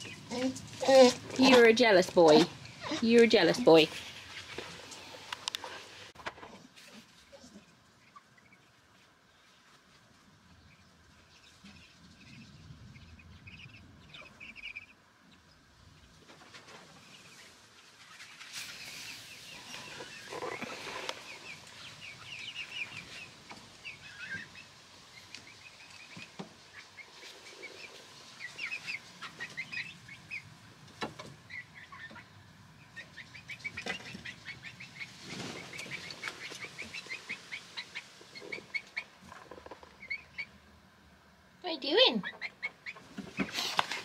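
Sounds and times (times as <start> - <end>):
birds chirping: 0.0 - 0.5, 10.4 - 15.7, 17.0 - 30.6, 31.2 - 40.7.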